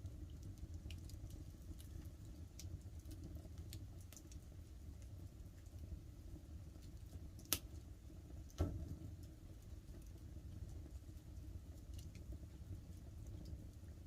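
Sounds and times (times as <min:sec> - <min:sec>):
campfire crackling: 0:00.0 - 0:14.0
light rain pattering: 0:00.0 - 0:14.0.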